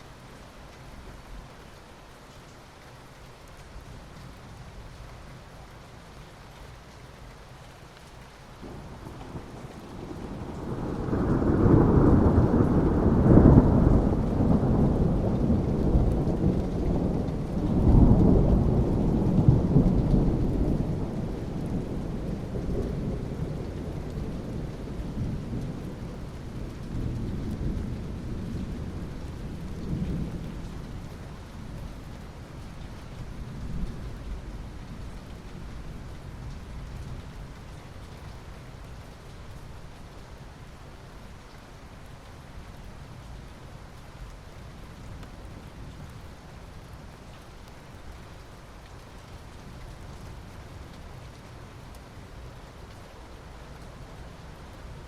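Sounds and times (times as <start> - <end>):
steady rain: 0.0 - 55.0
rolling thunder: 8.6 - 31.1.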